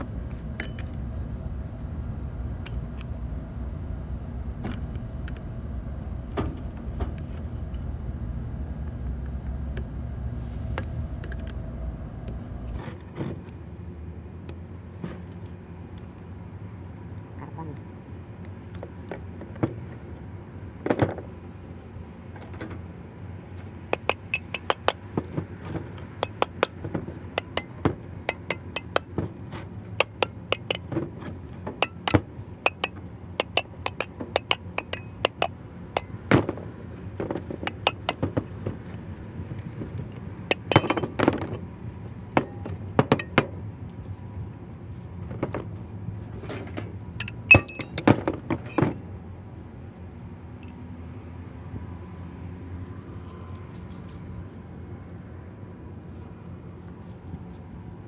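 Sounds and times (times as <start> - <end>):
faint low hum: 0.0 - 12.8
metal tools clinking: 40.5 - 41.4, 47.2 - 48.2.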